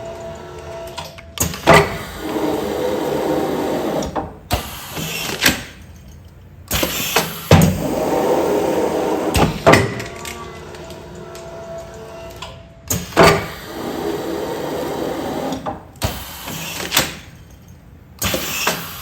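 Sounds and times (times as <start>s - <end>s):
sealing machine running: 0.0s - 5.7s, 13.0s - 17.0s.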